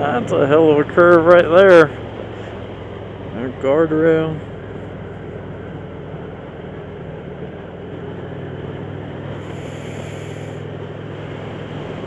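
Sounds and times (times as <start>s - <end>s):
motorcycle engine running: 0.0s - 12.0s
brief high hiss: 9.4s - 10.7s.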